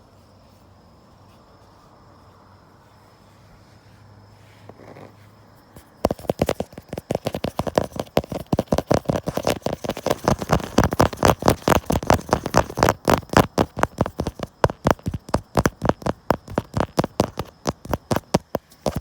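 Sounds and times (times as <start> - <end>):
fingertips tapping on phone: 5.8 - 19.0.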